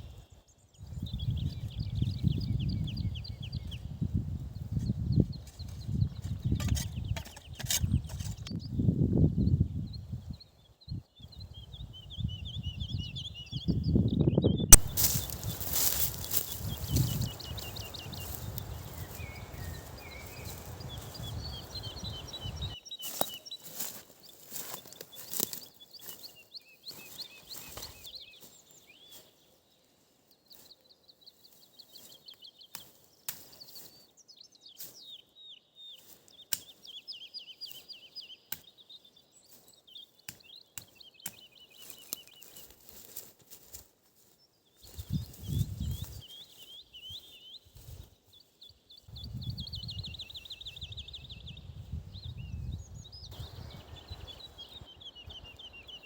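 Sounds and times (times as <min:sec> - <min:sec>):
songbirds singing: 0:00.0 - 0:56.0
sharp clicks and crackles: 0:14.8 - 0:16.6.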